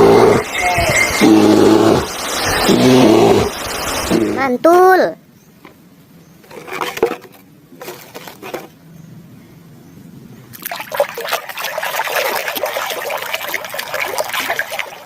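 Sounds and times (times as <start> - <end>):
water running and splashing: 10.5 - 15.0.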